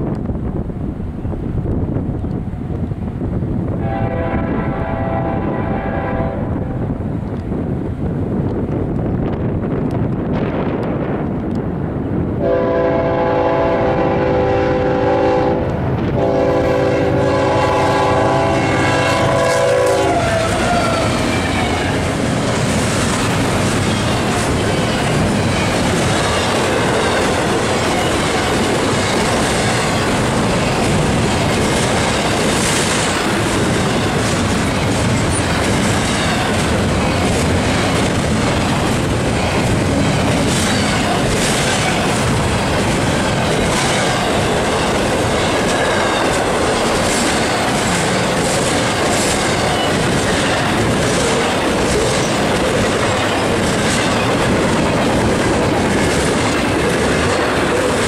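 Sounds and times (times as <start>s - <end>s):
train horn blasts: 3.8s - 6.8s, 12.4s - 22.0s
freight cars clattering over rails: 20.2s - 58.0s.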